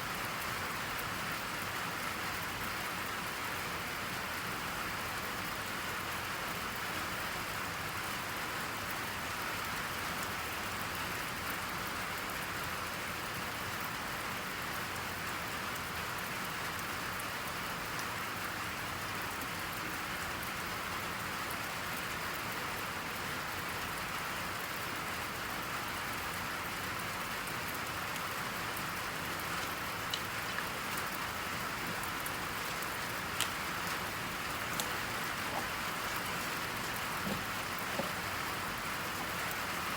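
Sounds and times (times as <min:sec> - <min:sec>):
steady rain falling: 0:00.0 - 0:39.9
faint ticks: 0:29.3 - 0:39.7.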